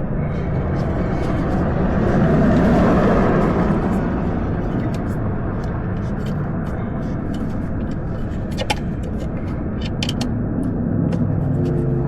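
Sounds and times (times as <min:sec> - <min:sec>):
low rumble: 0:00.0 - 0:12.0
hand tools clicking on metal: 0:02.5 - 0:12.0.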